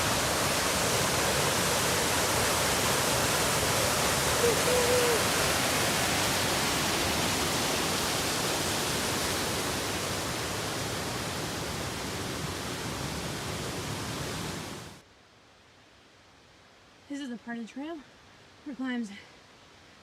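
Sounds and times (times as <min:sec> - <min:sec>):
brook water rushing: 0:00.0 - 0:15.0.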